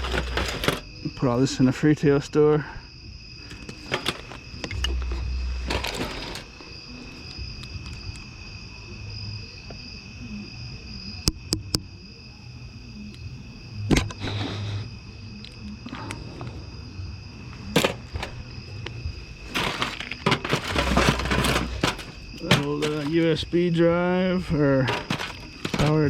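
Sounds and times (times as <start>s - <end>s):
items clicking and rustling: 0.0s - 0.9s, 3.4s - 8.2s, 17.5s - 23.5s, 24.8s - 26.0s.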